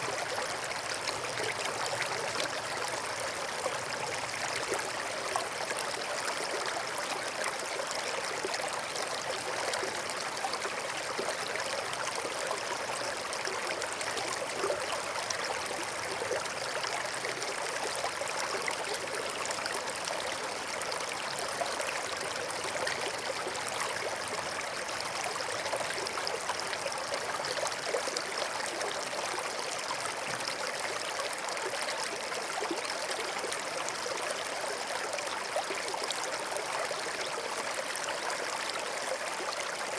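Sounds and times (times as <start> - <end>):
stream babbling over rocks: 0.0 - 39.9.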